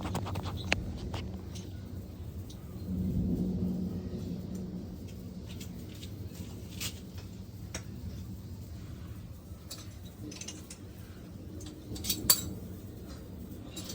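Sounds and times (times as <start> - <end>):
low steady hum: 0.0 - 13.9.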